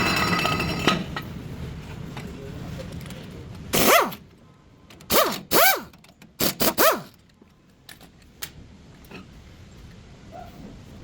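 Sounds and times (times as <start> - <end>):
dog barking: 10.3 - 10.6.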